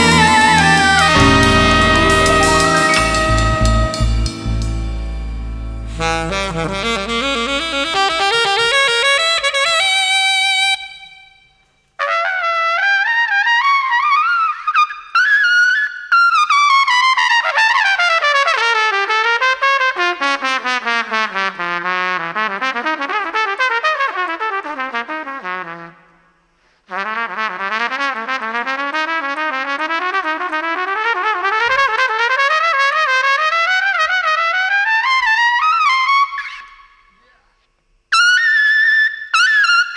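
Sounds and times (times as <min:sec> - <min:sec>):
jazz band playing: 0:00.0 - 0:09.5
solo jazz trumpet: 0:00.0 - 0:37.3.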